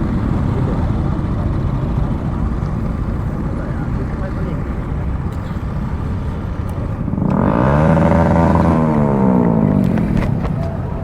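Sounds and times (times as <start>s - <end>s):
louder engine passing: 0.0s - 11.0s
motorcycle riding: 0.0s - 11.0s
wind noise: 0.0s - 11.0s.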